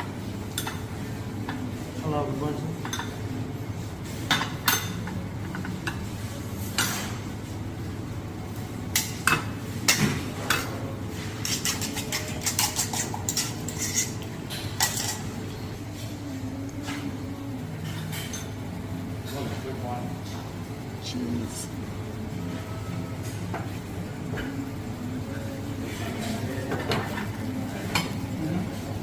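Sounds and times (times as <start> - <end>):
steady background hum: 0.0 - 29.0
plates pans and cutlery clinking: 8.9 - 15.4.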